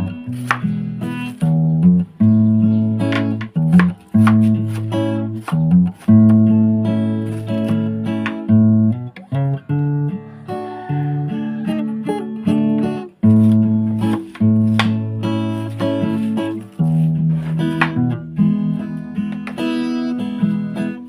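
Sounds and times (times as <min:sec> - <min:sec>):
strummed acoustic guitar chords: 0:00.0 - 0:21.0.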